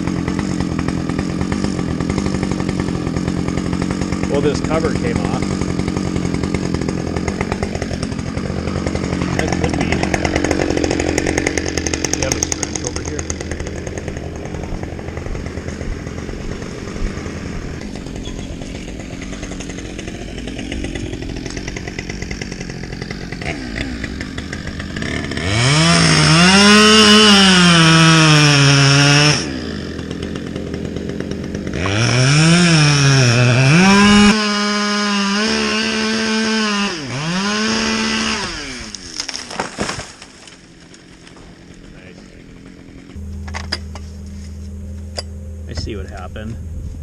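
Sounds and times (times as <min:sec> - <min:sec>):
chainsaw revving: 0:00.0 - 0:44.4
low steady engine hum: 0:41.9 - 0:47.0.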